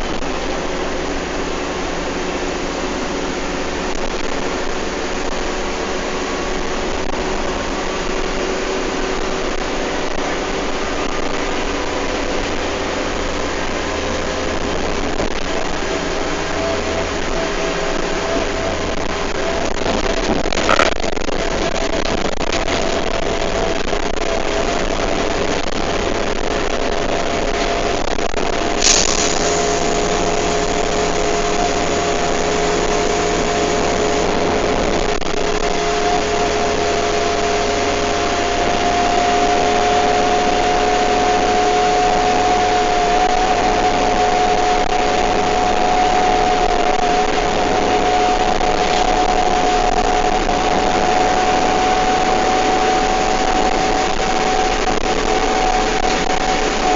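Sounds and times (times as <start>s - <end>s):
bus engine running: 0.0s - 56.9s
two-tone drivetrain whine: 0.0s - 56.9s
short hiss: 28.8s - 31.3s.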